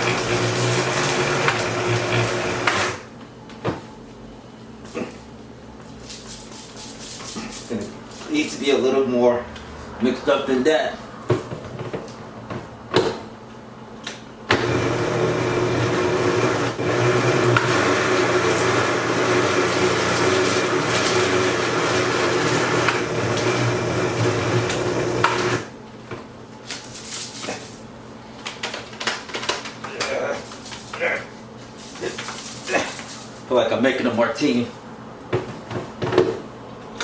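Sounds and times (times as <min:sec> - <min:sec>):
blender motor running: 0:00.0 - 0:03.1, 0:14.5 - 0:25.7.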